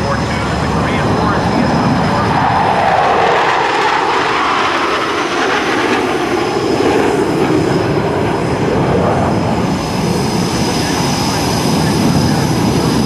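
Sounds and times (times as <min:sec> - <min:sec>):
jet engines flying past: 0:00.0 - 0:13.0.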